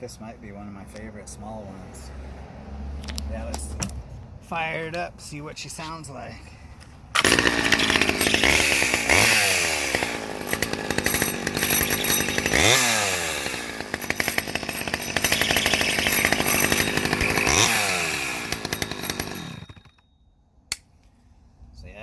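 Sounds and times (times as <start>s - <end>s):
chainsaw engine revving: 7.2s - 20.0s.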